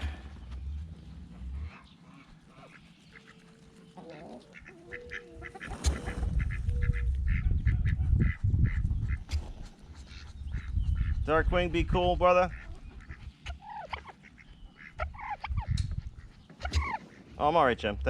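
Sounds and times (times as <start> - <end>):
low rumbling noise: 0.0 - 2.8
ducks quacking: 0.0 - 11.3, 12.2 - 18.0.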